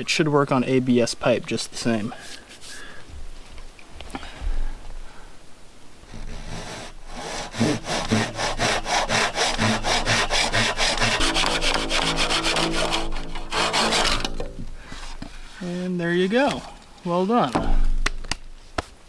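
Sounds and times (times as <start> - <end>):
handsaw cutting plastic pipe: 6.0 - 15.4.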